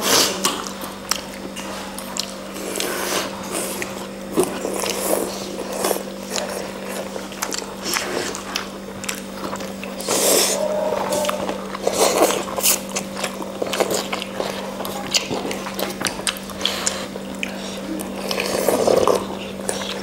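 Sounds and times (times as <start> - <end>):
person chewing food: 0.4 - 20.0
steady low hum: 4.0 - 18.4.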